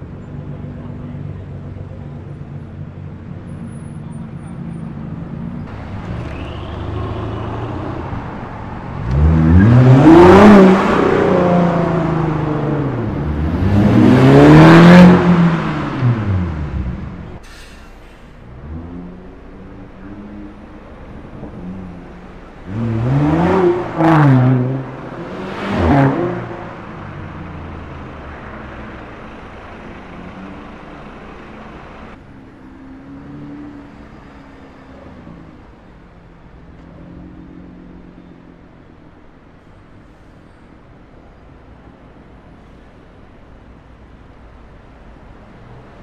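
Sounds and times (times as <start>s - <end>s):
sports car engine revving: 5.8s - 17.4s
engines running at low revs: 18.4s - 38.3s.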